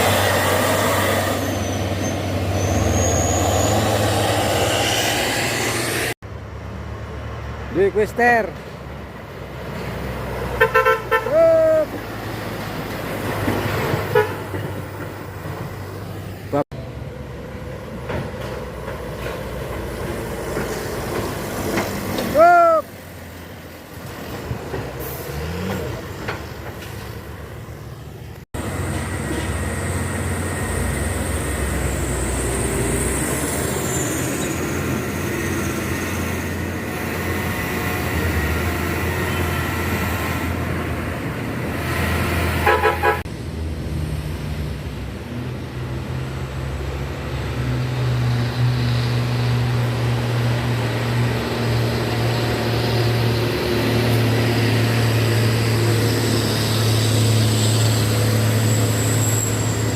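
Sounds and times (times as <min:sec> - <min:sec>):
truck engine labouring: 0:00.0 - 0:59.9
truck horn toot: 0:10.5 - 0:11.8, 0:14.1 - 0:14.5, 0:42.6 - 0:43.3.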